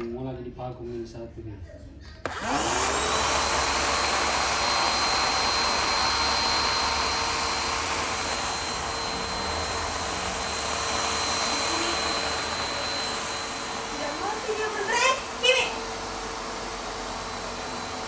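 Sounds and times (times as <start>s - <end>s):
electric motor whining: 2.2s - 18.0s
airy noise: 2.3s - 18.0s.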